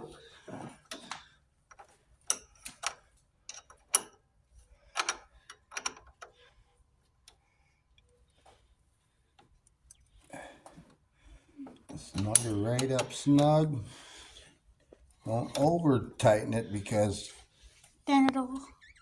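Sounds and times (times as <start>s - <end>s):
wrench clicking and tapping: 12.2s - 13.6s.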